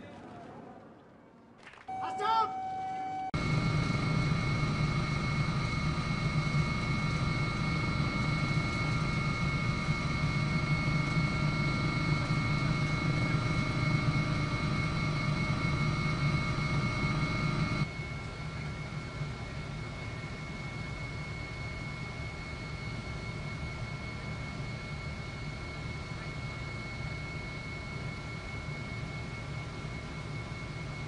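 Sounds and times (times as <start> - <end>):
high whining tones: 1.9 - 26.0.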